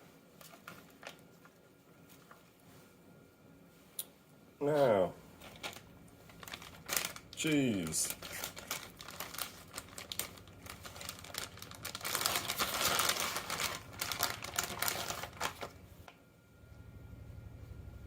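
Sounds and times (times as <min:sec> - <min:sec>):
cheese crinkling and ticking: 0:00.3 - 0:02.7, 0:05.4 - 0:16.2.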